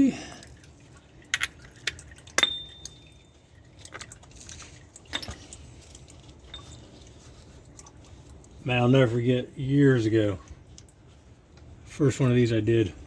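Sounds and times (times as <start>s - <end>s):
oil draining into a pan: 0.0s - 8.7s.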